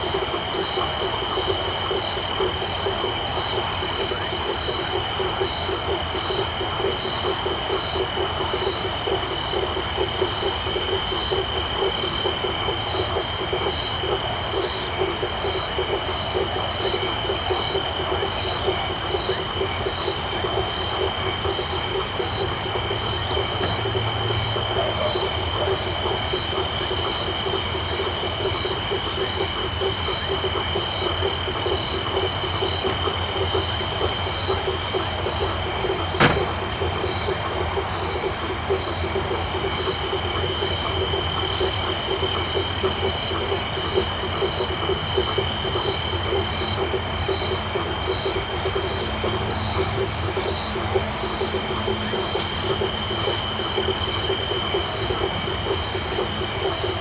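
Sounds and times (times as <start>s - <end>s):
frog chorus: 0.0s - 57.0s
sharp click: 36.2s - 37.2s.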